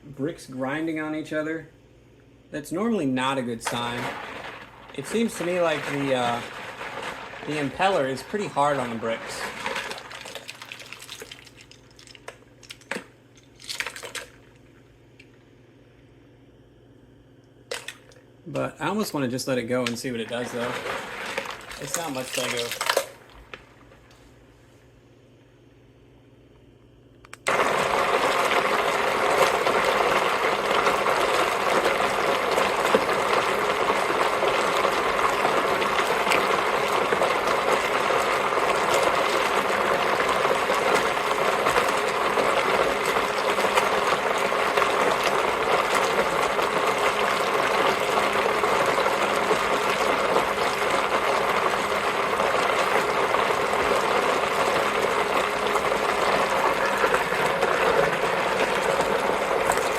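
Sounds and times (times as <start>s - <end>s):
washing machine churning water: 3.2s - 12.0s, 18.8s - 23.9s, 27.5s - 59.9s
plastic bricks grinding and clattering: 3.6s - 11.5s, 19.8s - 23.1s, 27.5s - 59.9s.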